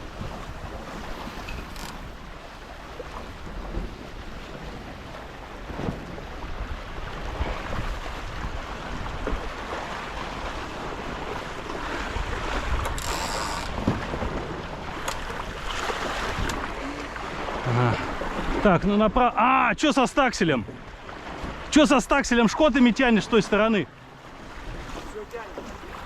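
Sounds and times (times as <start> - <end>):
wind buffeting microphone: 0.0 - 13.0, 13.6 - 18.7
water rushing along hulls: 0.0 - 26.0.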